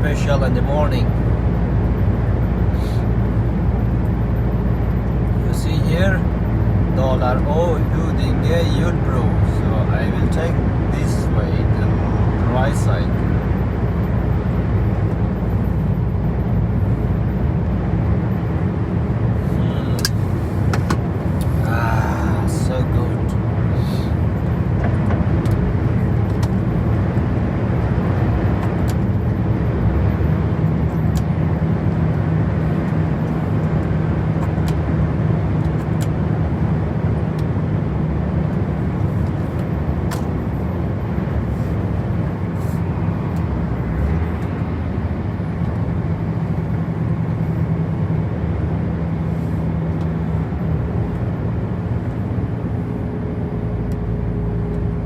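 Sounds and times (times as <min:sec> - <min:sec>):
truck engine humming: 0:00.0 - 0:55.0
tyre and road noise: 0:00.0 - 0:55.0.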